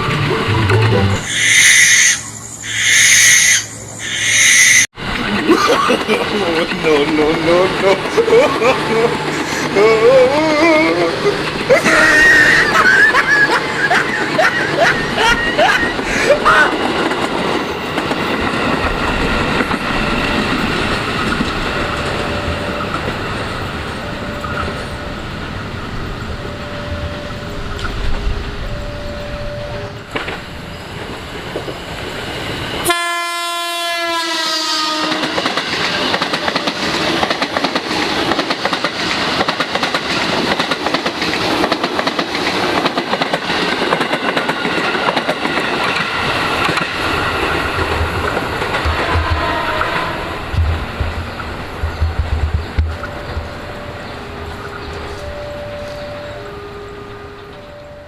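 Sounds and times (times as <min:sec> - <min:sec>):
train rumbling on rails: 0:00.0 - 0:58.0
train horn: 0:32.8 - 0:35.5, 0:48.8 - 0:50.6, 0:53.8 - 0:58.0.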